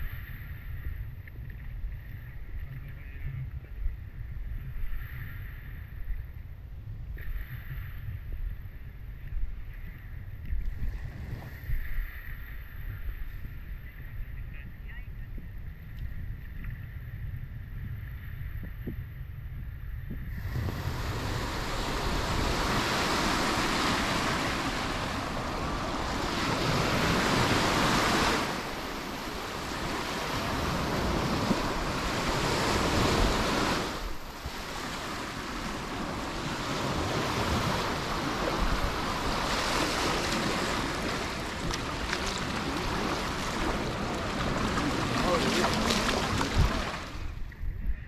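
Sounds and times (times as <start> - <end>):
wind on microphone: 0.0 - 48.0
waves washing onto beach: 20.3 - 47.6.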